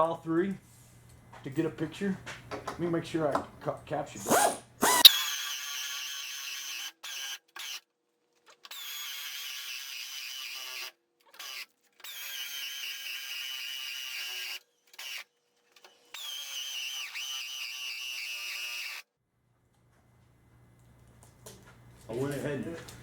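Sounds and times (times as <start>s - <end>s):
power drill whining: 4.2s - 7.4s, 8.7s - 19.0s.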